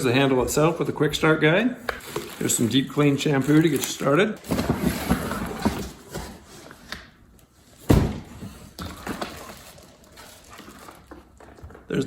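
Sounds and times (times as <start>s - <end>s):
packaging rustling and scraping: 2.0s - 6.9s, 7.6s - 11.6s.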